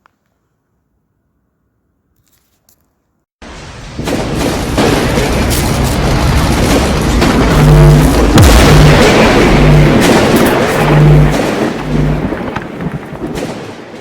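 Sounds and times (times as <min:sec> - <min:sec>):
firework crackling and banging: 0:04.0 - 0:14.0.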